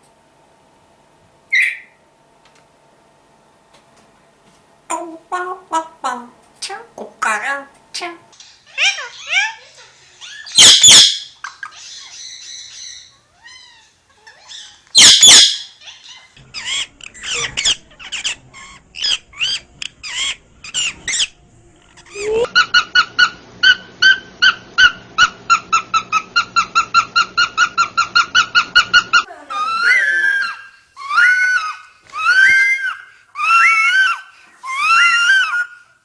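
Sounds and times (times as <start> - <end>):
parrot chirps: 1.5 - 2.0, 8.4 - 21.4, 22.0 - 35.9
parrot squawk: 1.5 - 2.0, 8.5 - 21.4, 22.0 - 35.9
repeated parrot call notes: 10.3 - 13.1, 14.4 - 18.3.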